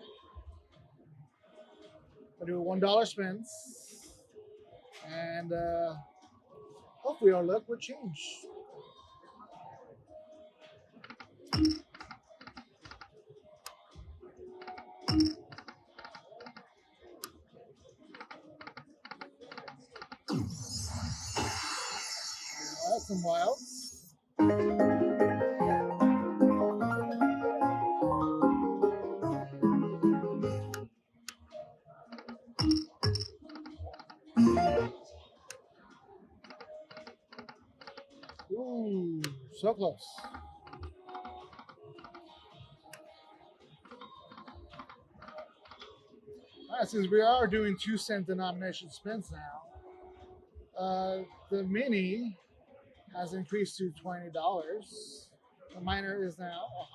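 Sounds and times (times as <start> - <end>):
slot machine electronic clicks: 11.0 - 12.6, 14.6 - 16.5, 32.2 - 34.9.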